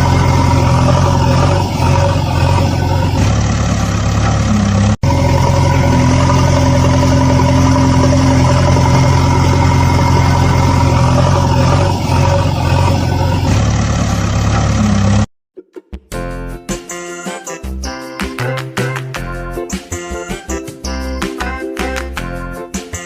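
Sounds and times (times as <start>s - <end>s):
tractor engine idling: 0.0s - 15.3s.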